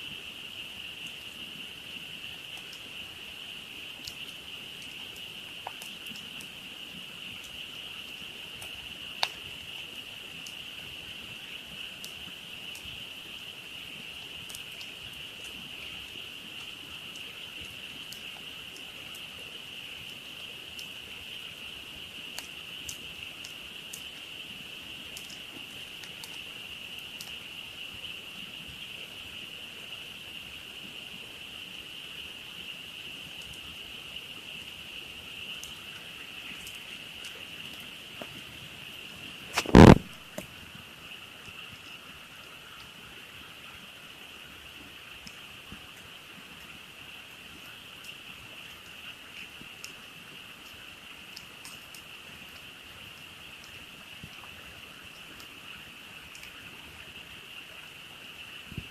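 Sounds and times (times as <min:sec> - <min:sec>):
campfire crackling and popping: 0:02.3 - 0:13.4, 0:14.1 - 0:19.4, 0:20.0 - 0:27.4, 0:34.6 - 0:40.6.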